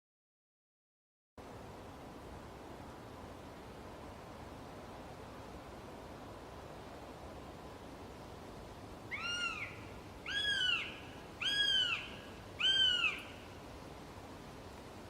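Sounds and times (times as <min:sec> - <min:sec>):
bird mewing call: 0:09.1 - 0:13.6.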